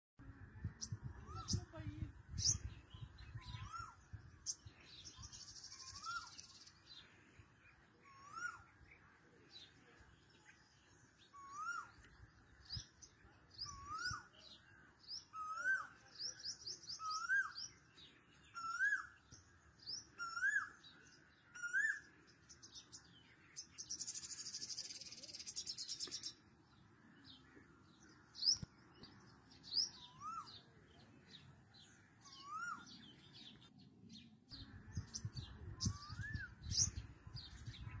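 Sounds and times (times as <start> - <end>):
high bird chirps: 0.7 - 7.0, 28.0 - 38.0.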